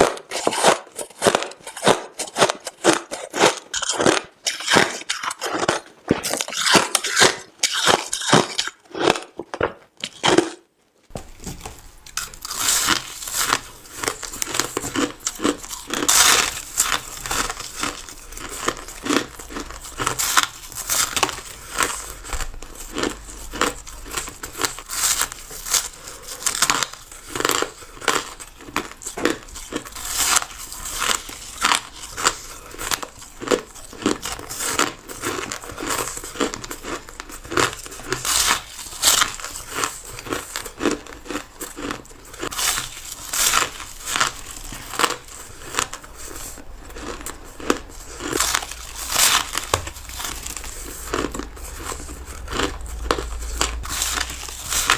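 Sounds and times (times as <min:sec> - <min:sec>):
ice being crunched: 0:00.0 - 0:10.6.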